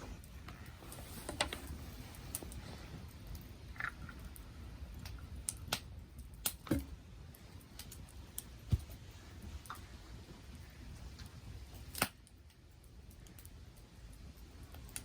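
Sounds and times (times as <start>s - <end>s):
campfire crackling and popping: 0.0s - 15.0s
low rumble of flames: 0.0s - 15.0s.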